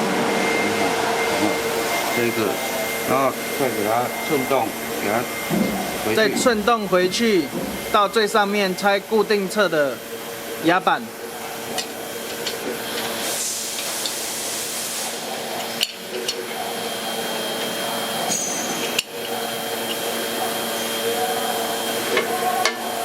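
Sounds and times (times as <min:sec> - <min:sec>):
machine motor humming: 0:00.0 - 0:23.0.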